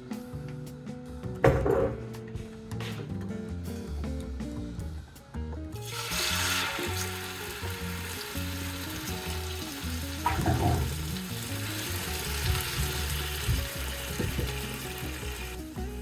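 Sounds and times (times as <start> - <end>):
food sizzling in a pan: 5.8 - 16.0.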